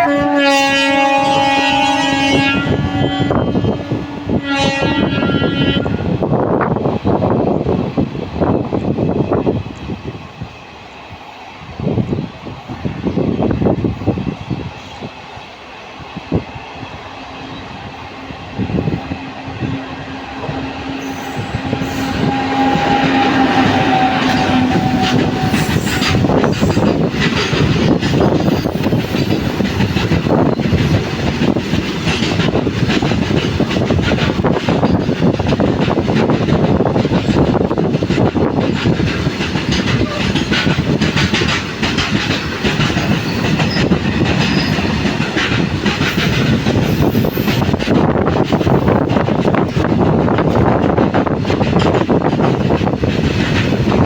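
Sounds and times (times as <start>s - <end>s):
train horn blast: 0.0s - 6.2s, 17.4s - 26.8s
freight train approaching: 0.0s - 54.0s
wheels clattering over rail joints: 21.0s - 54.0s.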